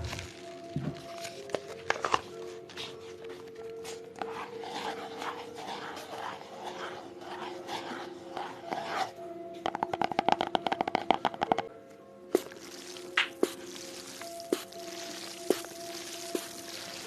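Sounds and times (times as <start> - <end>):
soft scratching strokes: 4.2 - 9.1
fast taps: 9.7 - 11.7.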